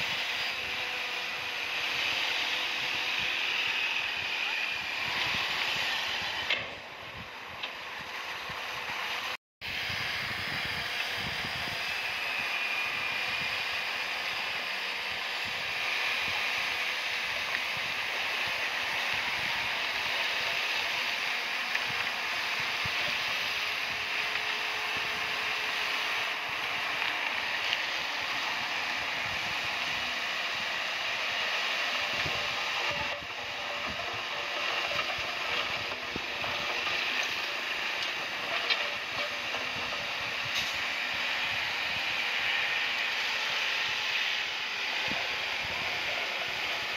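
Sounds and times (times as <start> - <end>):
diesel engine running: 0.0 - 46.9
bulldozer tracks clattering: 17.7 - 44.2.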